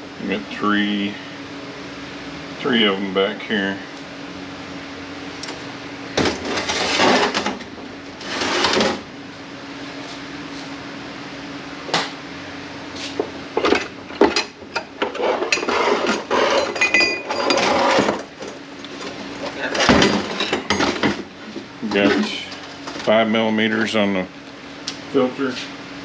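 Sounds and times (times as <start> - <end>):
steady hum: 0.0 - 26.0
metal parts scraping and clinking: 6.3 - 7.5, 13.6 - 21.1.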